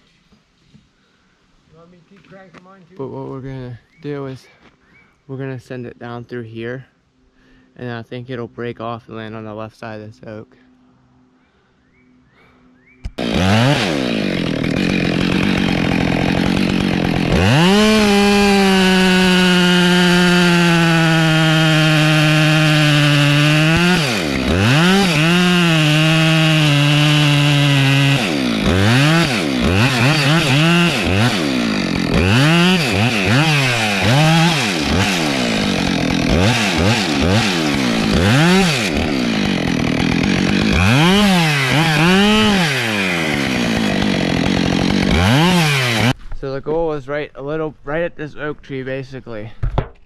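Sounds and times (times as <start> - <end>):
chainsaw running: 13.1 - 46.2.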